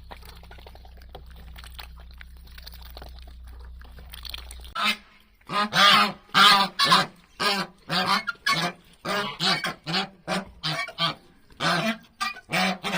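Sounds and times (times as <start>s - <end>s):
domestic waterfowl calling: 4.3s - 12.9s.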